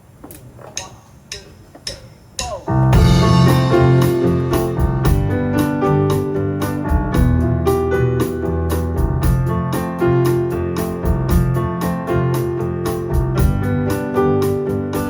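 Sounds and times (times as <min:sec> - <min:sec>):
high-pitched percussion ticking: 0:00.8 - 0:05.4
bass line: 0:02.7 - 0:15.0
keyboard chords and melody: 0:02.7 - 0:15.0.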